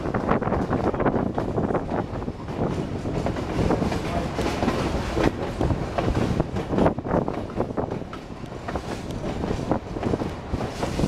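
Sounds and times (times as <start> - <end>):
wheels rumbling on rails: 0.0 - 11.0
wind buffeting microphone: 0.0 - 11.0.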